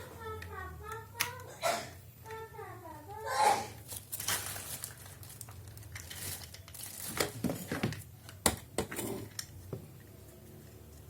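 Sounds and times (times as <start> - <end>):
plastic packaging crinkling: 3.8 - 8.1.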